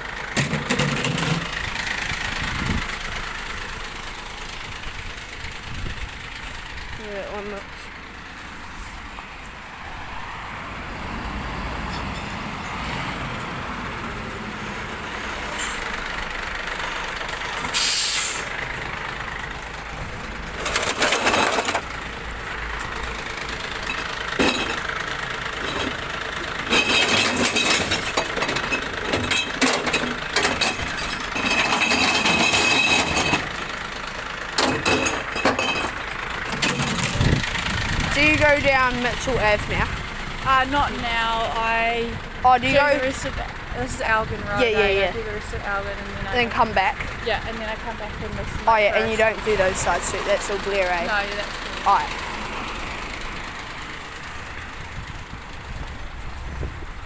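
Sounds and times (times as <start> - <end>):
truck engine running: 0.0 - 57.0
air hiss: 17.7 - 18.5.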